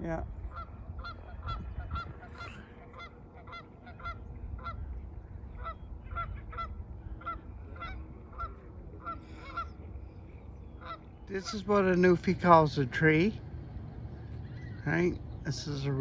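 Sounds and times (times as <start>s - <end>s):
low rumble: 0.0s - 16.0s
bird calling repeatedly: 10.4s - 12.3s, 14.3s - 16.0s.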